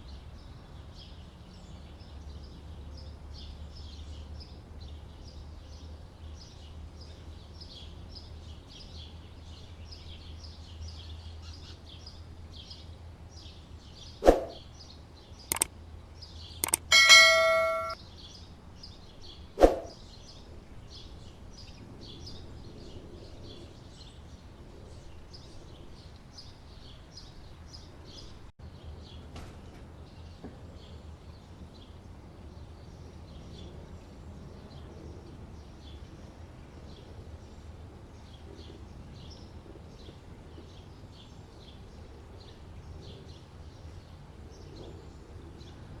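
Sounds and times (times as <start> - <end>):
birds chirping: 13.4 - 15.7, 16.4 - 18.0
sharp knock: 16.6 - 18.0.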